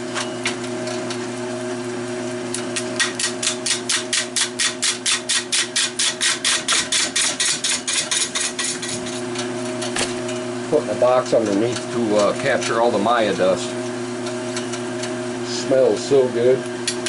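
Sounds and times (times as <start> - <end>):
turning tool scraping wood: 3.0 - 9.4.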